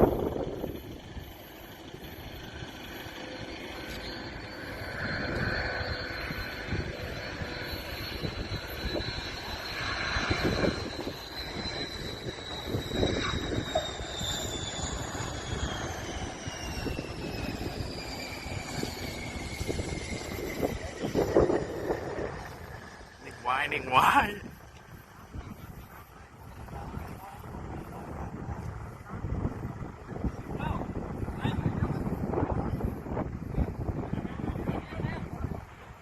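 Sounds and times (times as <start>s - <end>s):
aircraft engine whine: 0.0s - 36.0s
low rumbling noise: 0.0s - 36.0s.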